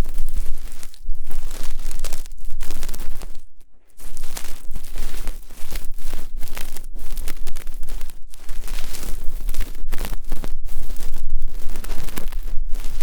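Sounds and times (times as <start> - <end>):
ear pick scraping microphone: 0.0 - 13.0.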